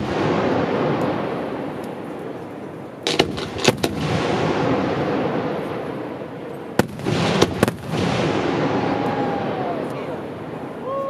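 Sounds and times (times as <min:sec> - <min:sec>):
fireworks bursting: 0:00.0 - 0:11.0
sharp bangs: 0:03.0 - 0:09.1.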